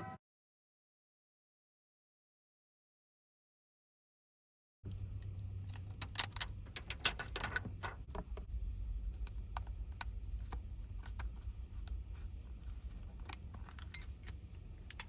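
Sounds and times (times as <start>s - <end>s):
steady low hum: 4.9s - 15.0s.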